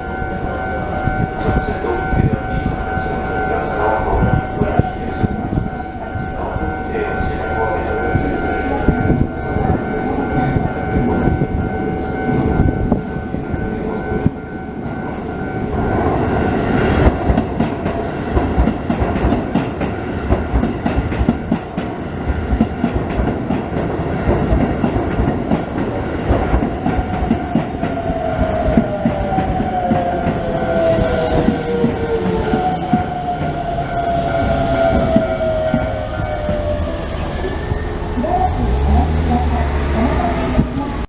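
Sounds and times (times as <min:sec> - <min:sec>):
level crossing warning bell: 0:00.0 - 0:41.0
falling whine: 0:27.6 - 0:41.0.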